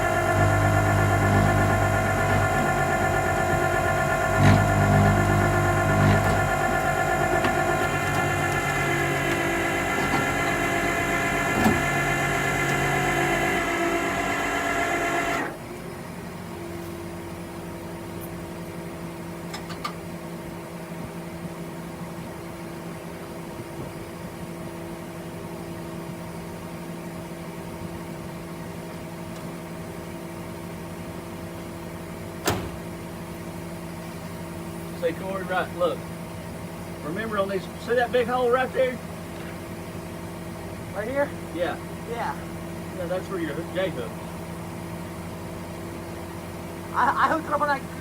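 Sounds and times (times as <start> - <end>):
loud mechanical whine: 0.0 - 16.5
vehicle engine idling: 0.0 - 19.1.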